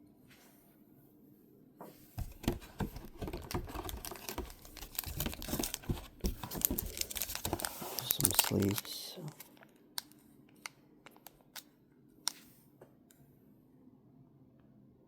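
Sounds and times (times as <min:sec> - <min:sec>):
packaging rustling and crinkling: 0:02.2 - 0:10.2.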